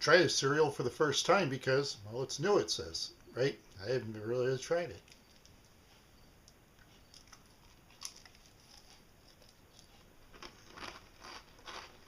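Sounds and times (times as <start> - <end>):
cereal being chewed: 6.8 - 12.0.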